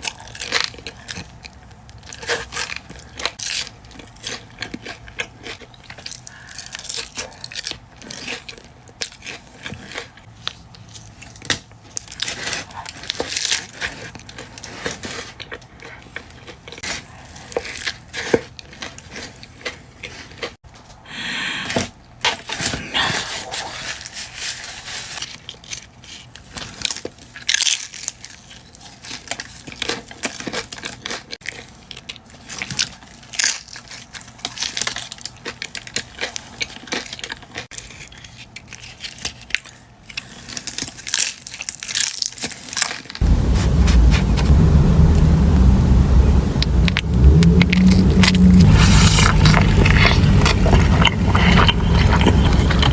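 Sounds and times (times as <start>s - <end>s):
crunching and chewing food: 0.0s - 21.0s, 21.7s - 45.0s, 46.6s - 52.9s
paper wrapper crinkling and tearing: 5.8s - 20.6s, 22.4s - 44.5s, 47.7s - 52.9s.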